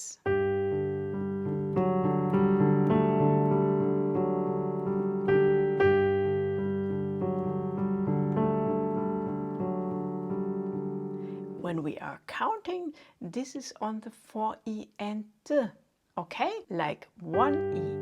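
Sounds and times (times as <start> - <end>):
gentle piano playing: 0.2 - 12.0, 17.3 - 18.0.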